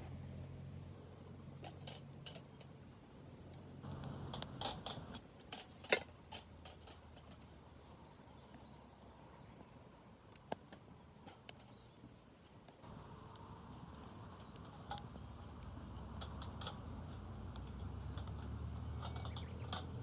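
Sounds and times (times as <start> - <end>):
light clicks and clinks: 3.8 - 7.4, 12.8 - 20.0.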